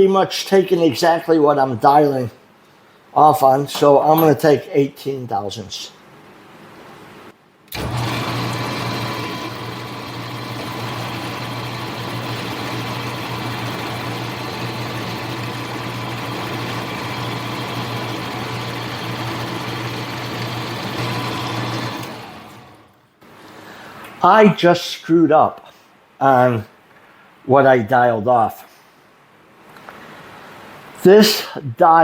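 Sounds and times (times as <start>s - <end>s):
metal lathe humming and whining: 7.7s - 23.0s.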